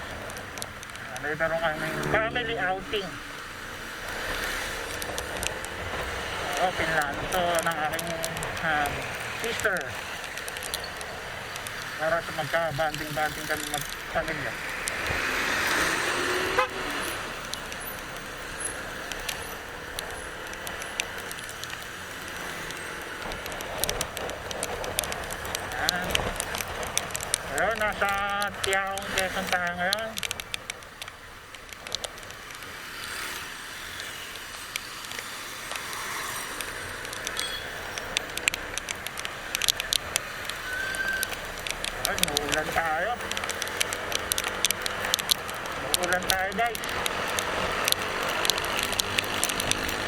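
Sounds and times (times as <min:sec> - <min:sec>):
light ticks: 0:00.0 - 0:02.1, 0:04.0 - 0:50.0
vehicle passing: 0:00.0 - 0:30.5, 0:31.8 - 0:50.0
road noise: 0:00.0 - 0:50.0.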